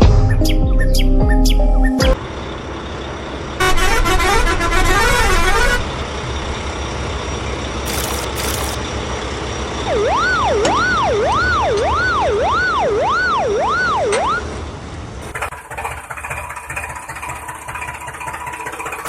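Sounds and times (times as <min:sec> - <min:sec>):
siren wailing: 0:09.7 - 0:14.6.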